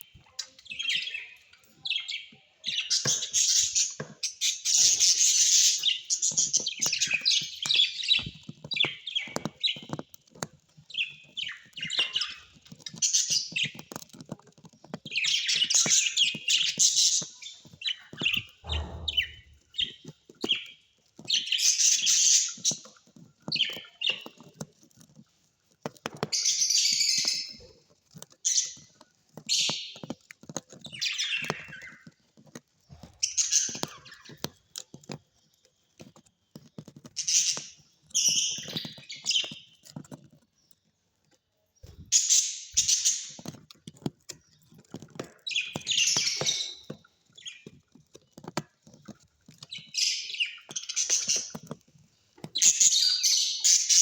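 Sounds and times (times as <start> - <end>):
parrots chirping and chattering: 0.0 - 54.0
low thud: 18.6 - 19.6.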